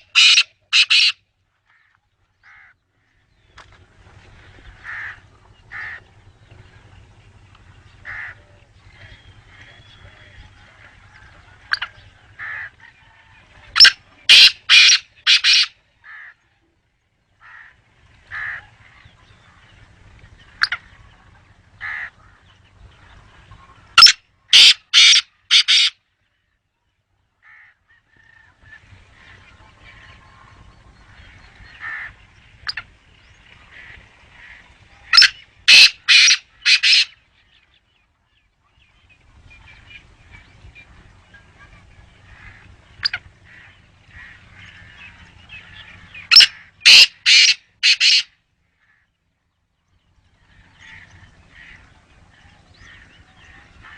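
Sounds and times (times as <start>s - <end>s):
francolin harsh calls: 0.0s - 1.2s, 13.8s - 16.4s, 33.7s - 37.2s, 42.3s - 49.1s.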